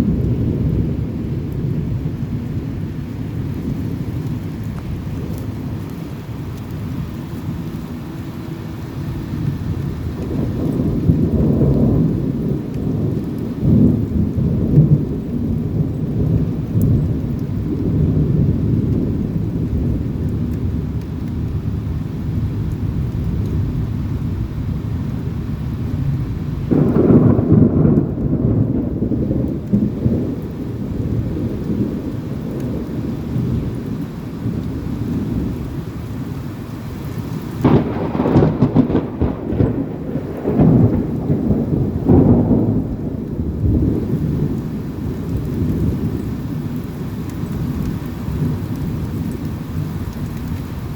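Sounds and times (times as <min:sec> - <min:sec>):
steady rain: 0:00.0 - 0:50.9
thunder rumbling: 0:00.0 - 0:50.9
thunder crack: 0:26.7 - 0:33.1, 0:37.6 - 0:44.9.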